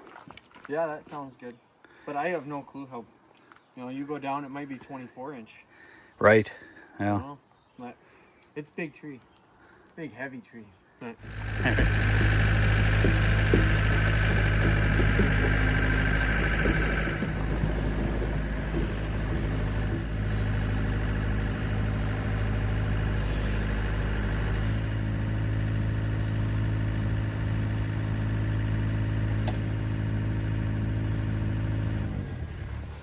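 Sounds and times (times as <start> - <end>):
engine idling: 11.2 - 33.0.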